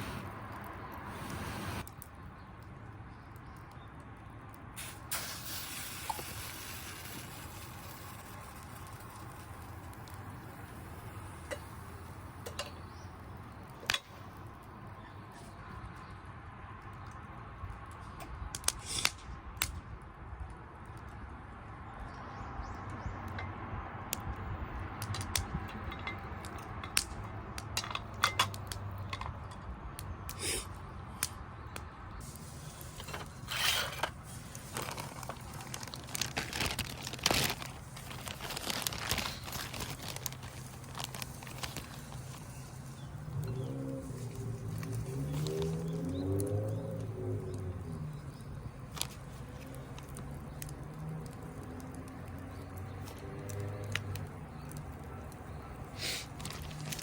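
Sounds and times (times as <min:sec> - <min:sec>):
crackling and crinkling handling: 0:32.2 - 0:57.0.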